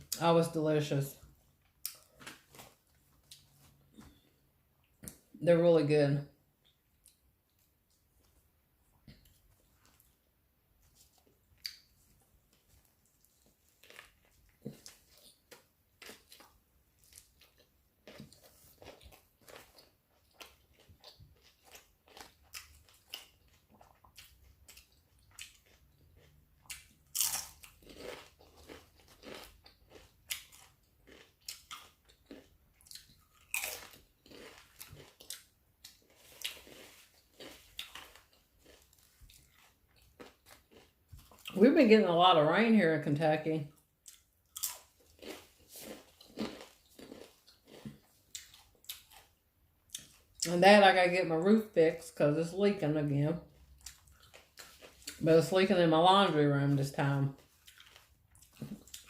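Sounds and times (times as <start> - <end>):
person biting and chewing: 1.8 - 4.2, 10.9 - 41.5, 44.0 - 50.5, 57.5 - 59.0.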